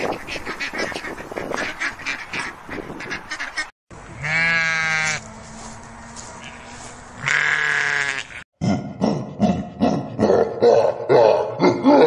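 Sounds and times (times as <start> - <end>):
geese honking: 0.0 - 8.4
sheep bleating: 4.2 - 5.2, 6.4 - 8.4.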